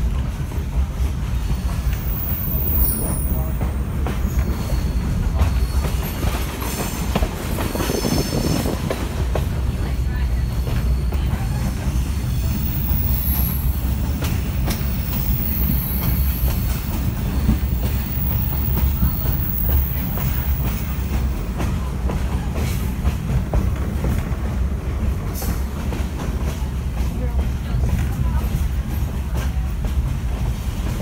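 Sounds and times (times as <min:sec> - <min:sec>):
railcar rumble from inside coach: 0:00.0 - 0:31.0
high wheel squeals: 0:01.4 - 0:03.5, 0:04.2 - 0:08.8, 0:10.3 - 0:21.0.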